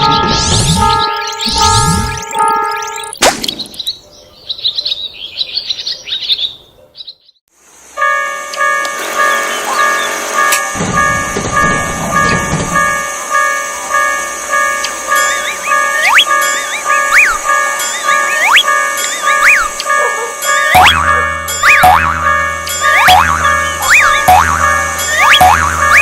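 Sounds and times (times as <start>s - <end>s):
birds chirping: 0.0s - 7.4s, 8.9s - 26.0s
low train rumble: 7.6s - 26.0s
two-tone level crossing bell: 8.0s - 26.0s.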